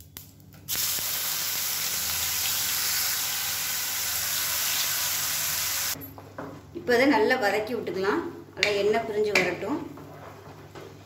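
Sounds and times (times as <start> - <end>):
paste sizzling in hot oil: 0.7 - 6.0.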